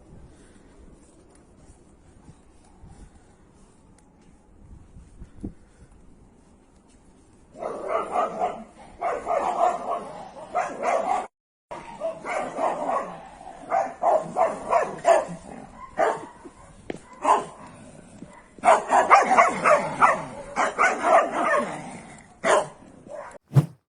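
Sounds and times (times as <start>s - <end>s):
small dog yipping and barking: 11.8s - 17.5s, 18.6s - 21.6s.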